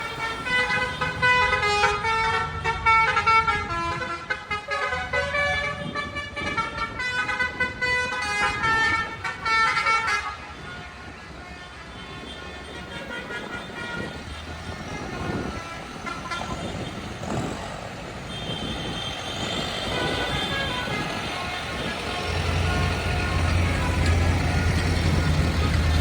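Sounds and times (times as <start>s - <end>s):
tractor horns tooting: 0.0s - 26.0s
low engine rumble: 19.4s - 26.0s.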